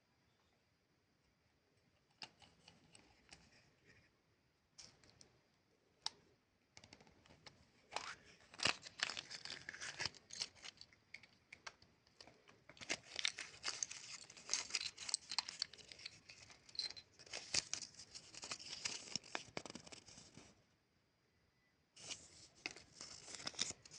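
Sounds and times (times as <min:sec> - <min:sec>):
plastic wrapper crinkling: 0:07.9 - 0:11.4, 0:12.2 - 0:20.5, 0:22.0 - 0:23.9.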